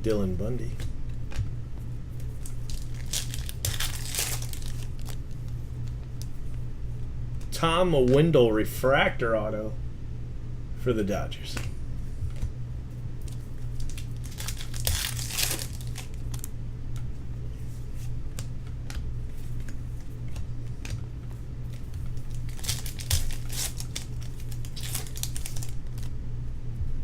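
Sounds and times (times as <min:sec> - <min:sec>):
steady low hum: 0:00.0 - 0:27.0
foil wrappers crinkling: 0:02.2 - 0:05.5, 0:13.2 - 0:16.5, 0:21.6 - 0:26.2.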